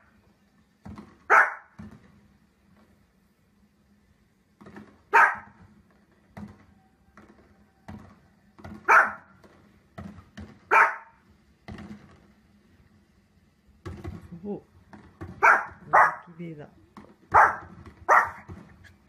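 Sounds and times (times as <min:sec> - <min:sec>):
dog barking: 0:01.3 - 0:01.7, 0:05.1 - 0:05.6, 0:08.9 - 0:09.3, 0:10.7 - 0:11.2, 0:15.4 - 0:16.3, 0:17.3 - 0:18.5.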